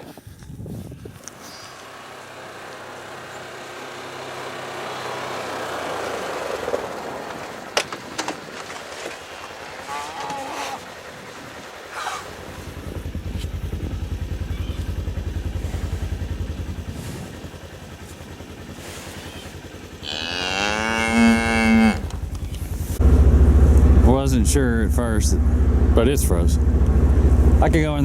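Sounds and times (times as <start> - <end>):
vehicle engine idling: 0.3 - 9.9, 10.7 - 28.0
cow mooing: 9.8 - 10.8, 19.3 - 22.2.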